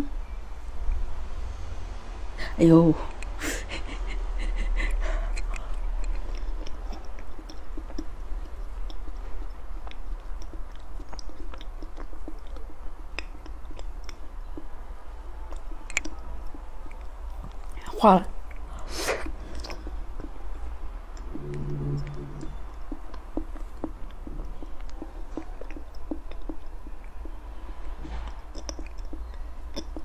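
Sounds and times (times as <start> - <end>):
steady low hum: 0.0 - 30.0
chewing cake: 4.8 - 30.0
wet mouth clicks: 5.3 - 14.7, 15.5 - 17.8, 21.2 - 27.4, 28.3 - 30.0.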